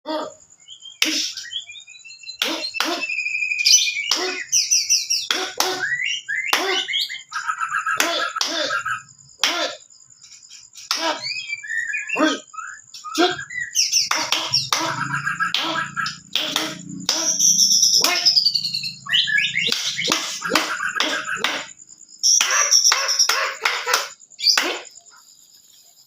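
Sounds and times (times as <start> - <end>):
bird-like chirps and calls: 0.1 - 26.0
gliding whistles: 11.2 - 23.2.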